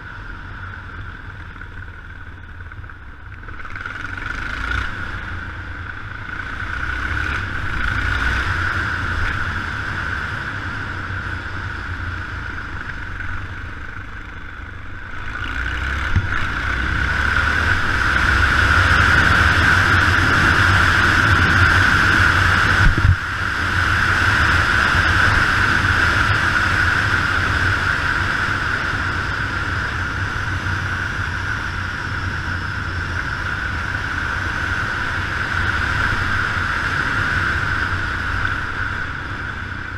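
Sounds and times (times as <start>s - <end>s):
motorcycle engine running: 0.0s - 39.9s
wind rush on microphone: 16.0s - 39.9s.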